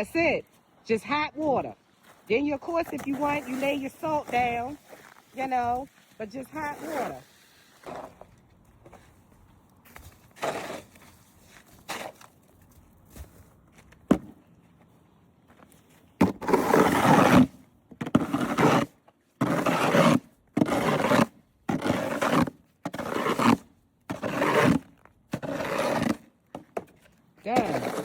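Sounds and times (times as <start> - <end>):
snow shovel scraping: 1.0 - 9.2, 9.9 - 12.4, 16.2 - 26.3, 27.4 - 28.0.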